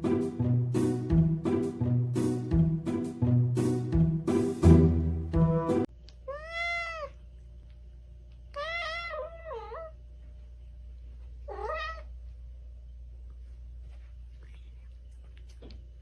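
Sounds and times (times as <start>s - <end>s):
low steady hum: 4.7s - 16.0s
cat meowing: 6.3s - 7.2s, 8.5s - 10.0s, 11.5s - 12.1s.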